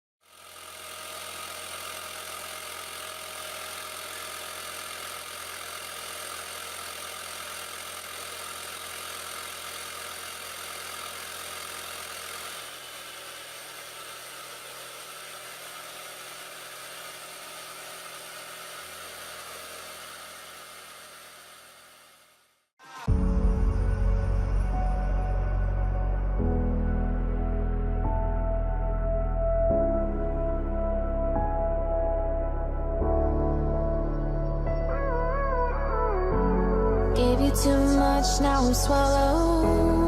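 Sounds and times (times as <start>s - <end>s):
air compressor motor running: 0.2s - 25.0s.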